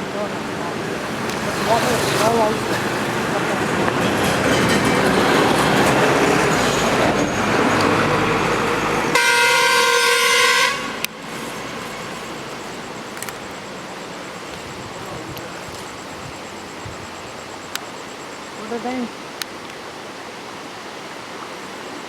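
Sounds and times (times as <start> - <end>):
loud rushing noise: 0.0 - 17.2
vehicle horn: 9.1 - 12.3.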